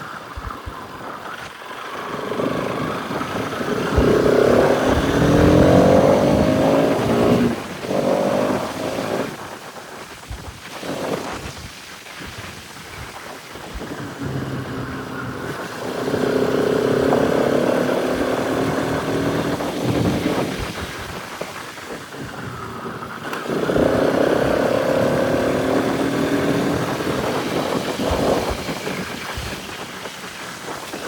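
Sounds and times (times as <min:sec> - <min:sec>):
motorcycle engine pulling: 0:00.0 - 0:09.8, 0:10.6 - 0:11.8, 0:13.6 - 0:31.0
wind rushing: 0:00.2 - 0:31.0.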